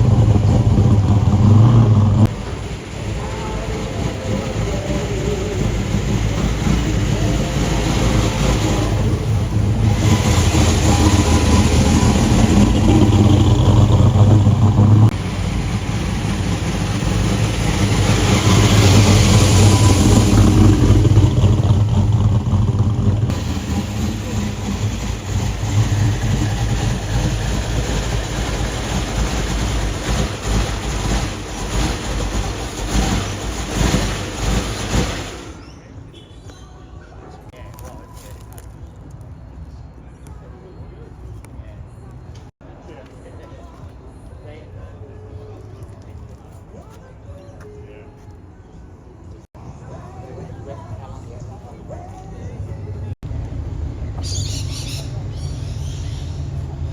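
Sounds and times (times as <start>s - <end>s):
car engine revving: 0.0s - 35.6s.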